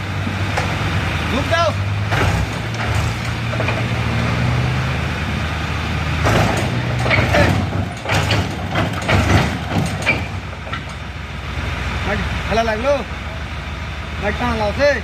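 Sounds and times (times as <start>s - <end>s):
tractor diesel engine running: 0.0s - 15.0s
knocks and rattles: 2.0s - 4.2s, 6.2s - 11.2s.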